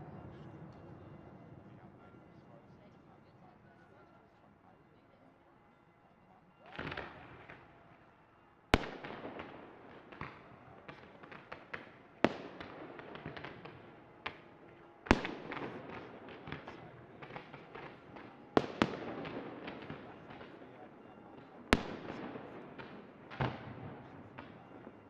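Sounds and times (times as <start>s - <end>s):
fireworks bursting in bangs: 15.1s - 20.8s, 21.5s - 25.0s.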